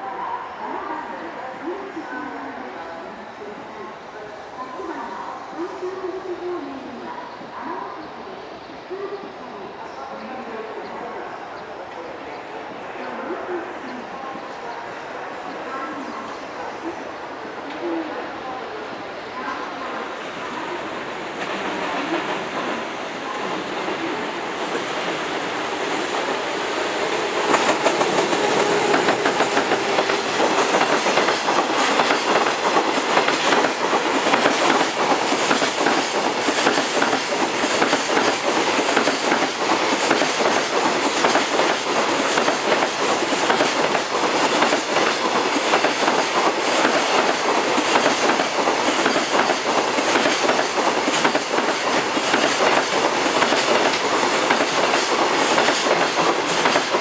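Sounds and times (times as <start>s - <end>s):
electric locomotive passing: 0.0s - 57.0s.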